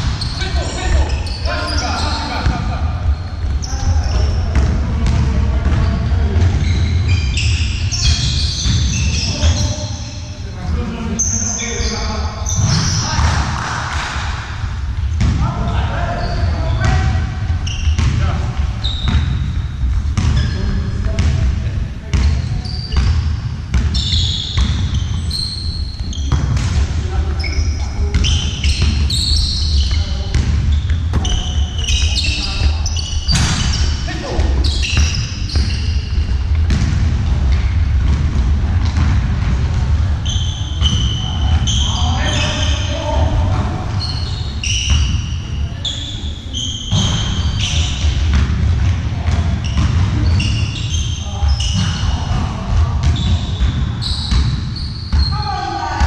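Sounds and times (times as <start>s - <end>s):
ball bouncing on hard court: 0.0s - 9.8s, 12.5s - 14.3s, 15.0s - 55.4s
shoe squeaks: 0.0s - 13.2s, 15.4s - 21.4s, 22.1s - 36.7s, 40.2s - 48.4s, 49.2s - 56.0s
low hall rumble: 30.0s - 46.5s.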